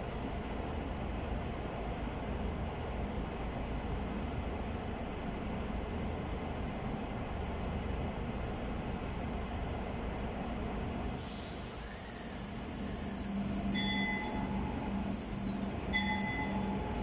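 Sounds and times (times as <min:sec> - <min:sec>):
train low rumble: 0:00.0 - 0:17.0
air hiss: 0:11.2 - 0:15.9
high squeals: 0:11.8 - 0:16.8.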